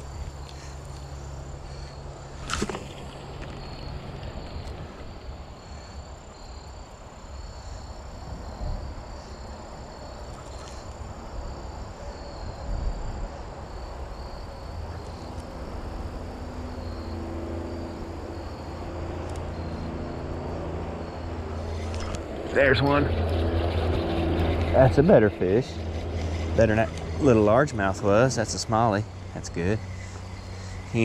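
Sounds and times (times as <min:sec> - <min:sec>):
insects chirping: 0:00.0 - 0:31.0
low outdoor rumble: 0:00.0 - 0:31.0
low steady motor hum: 0:10.9 - 0:31.0.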